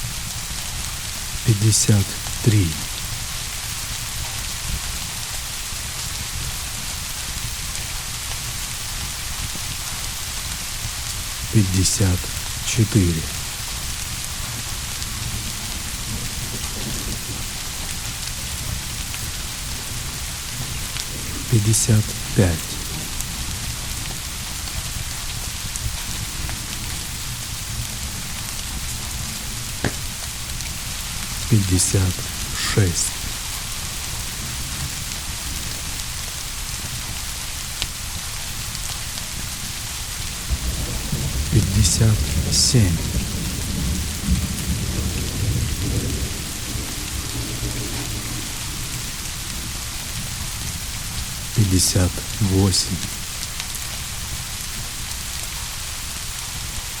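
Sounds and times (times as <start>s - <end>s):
heavy rain: 0.0s - 57.0s
low rumble of thunder: 40.5s - 41.5s, 43.0s - 51.2s.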